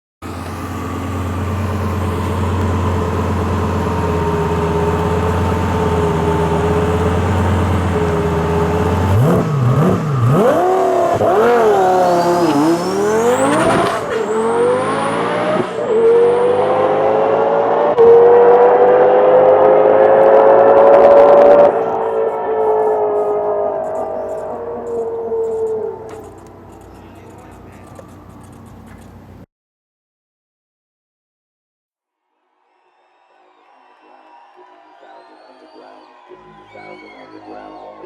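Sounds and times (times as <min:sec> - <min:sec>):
car engine idling and revving: 0:00.2 - 0:29.4.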